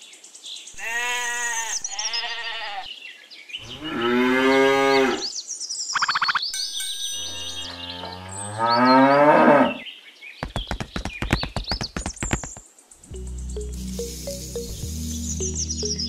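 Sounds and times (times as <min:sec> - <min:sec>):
cow mooing: 0:00.8 - 0:02.9, 0:03.6 - 0:05.3, 0:07.5 - 0:09.8
low music: 0:13.1 - 0:16.0.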